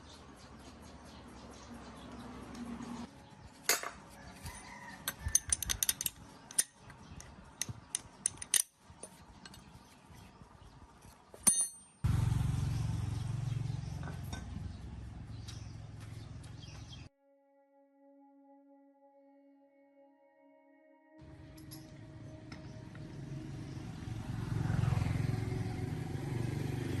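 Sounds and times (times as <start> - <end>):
metal tools clinking: 3.7 - 9.8, 11.0 - 12.0, 21.3 - 22.7.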